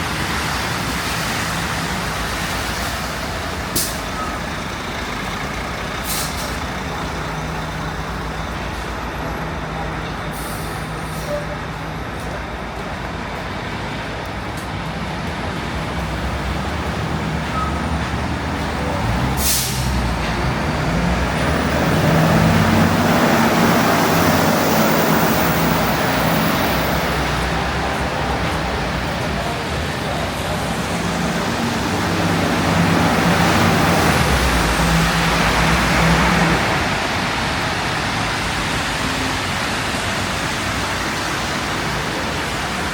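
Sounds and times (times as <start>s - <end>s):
city street traffic: 0.0s - 42.9s
heavy vehicle engine running: 0.0s - 42.9s
air brake hiss: 3.7s - 4.3s, 6.0s - 6.6s, 10.3s - 11.4s, 19.4s - 20.0s.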